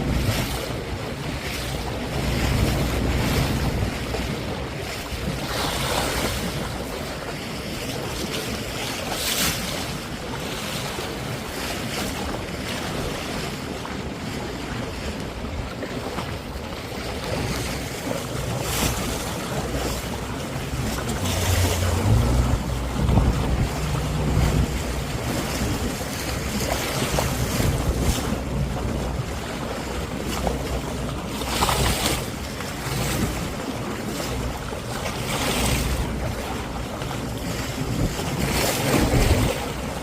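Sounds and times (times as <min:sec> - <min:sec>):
sea waves washing: 0:00.0 - 0:40.0
wind buffeting microphone: 0:00.0 - 0:40.0
low hum: 0:18.5 - 0:29.2.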